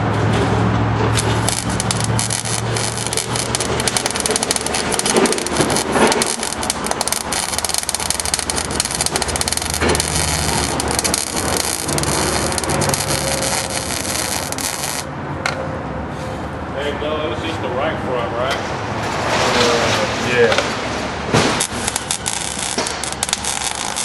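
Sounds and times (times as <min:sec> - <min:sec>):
welding crackling sizzle: 0:01.1 - 0:15.1, 0:21.4 - 0:24.0.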